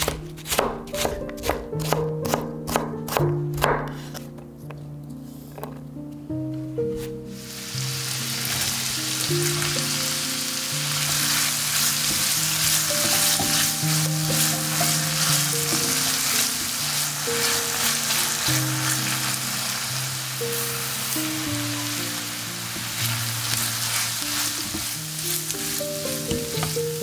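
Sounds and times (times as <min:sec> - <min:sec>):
soft background music: 0:00.0 - 0:27.0
vegetables sizzling in oil: 0:07.3 - 0:27.0
spatula stirring: 0:11.0 - 0:19.6.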